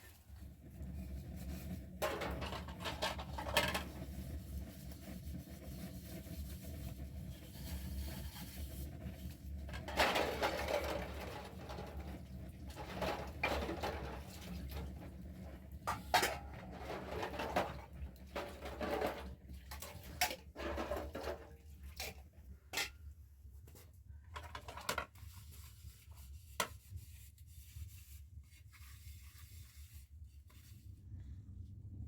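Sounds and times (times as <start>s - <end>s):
objects knocking and clicking: 2.0s - 4.0s
low steady hum: 30.5s - 32.0s.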